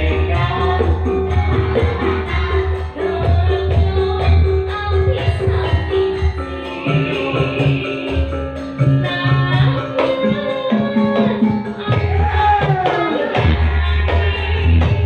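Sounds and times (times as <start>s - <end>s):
gliding pitched melody line: 0.0s - 15.0s
live band music with low beat: 0.0s - 15.0s.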